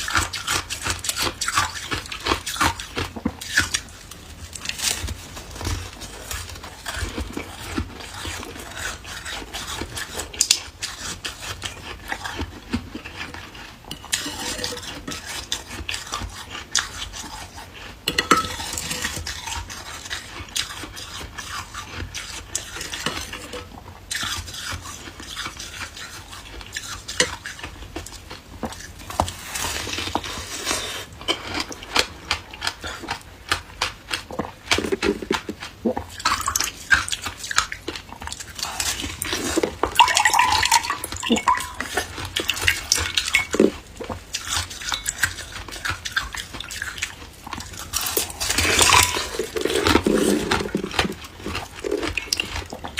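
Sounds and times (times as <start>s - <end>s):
ice being chewed: 0.0s - 52.9s
ice clinking against container: 39.4s - 43.8s, 48.2s - 51.2s.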